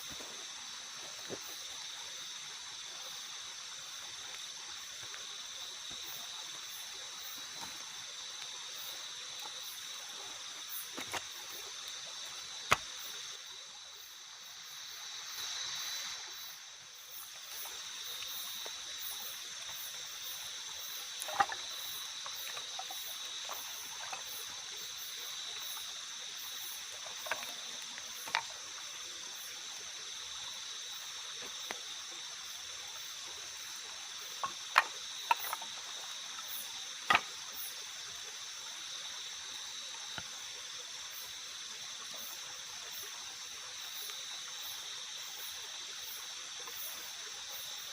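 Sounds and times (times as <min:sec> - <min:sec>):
insect chorus: 0:00.0 - 0:47.9
pulsing insect chirp: 0:00.0 - 0:47.9
soft watery hiss: 0:00.0 - 0:47.9.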